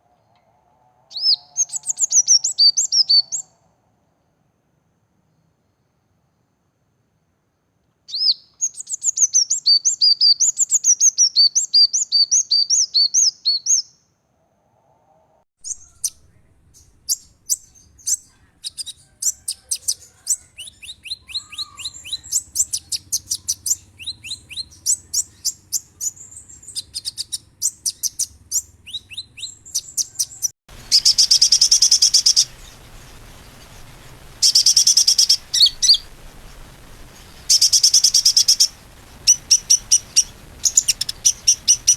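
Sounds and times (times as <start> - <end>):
songbirds chirping: 0.0 - 4.2, 15.6 - 41.9
hiss: 30.7 - 41.9.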